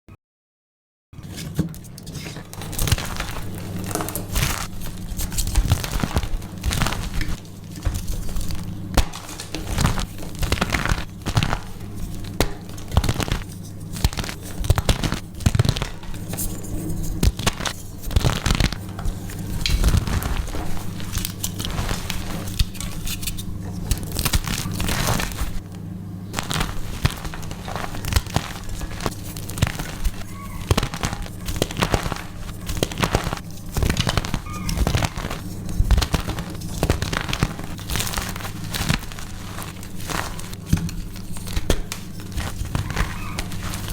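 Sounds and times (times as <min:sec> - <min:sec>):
chalk crunching and crumbling: 0:02.1 - 0:25.6, 0:26.3 - 0:43.9.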